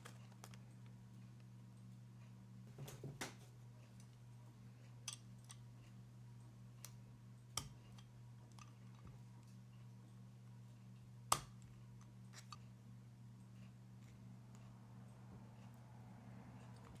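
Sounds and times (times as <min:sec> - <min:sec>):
steady low hum: 0:00.0 - 0:17.0
light clicks and taps of small parts: 0:04.8 - 0:06.0.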